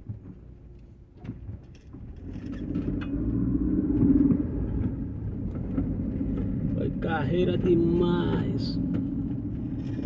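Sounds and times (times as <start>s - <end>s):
car engine accelerating: 2.3s - 7.0s.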